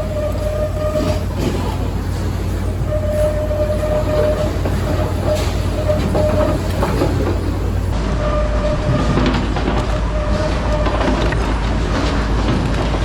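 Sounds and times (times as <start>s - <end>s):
clattering: 0.0s - 7.9s
machinery humming: 0.0s - 9.3s.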